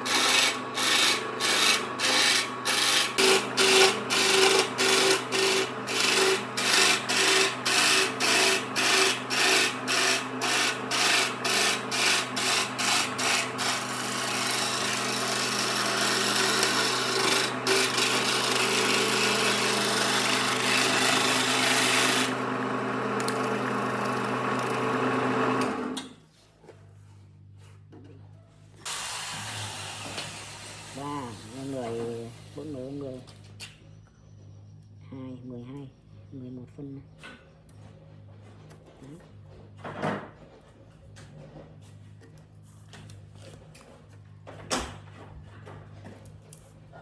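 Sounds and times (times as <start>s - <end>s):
power sander on wood: 0.0s - 26.0s, 28.9s - 33.0s.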